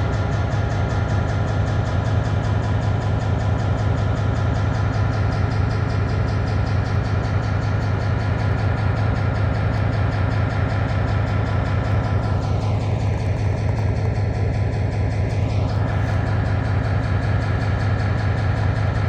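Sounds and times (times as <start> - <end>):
diesel locomotive engine running: 0.0 - 19.0.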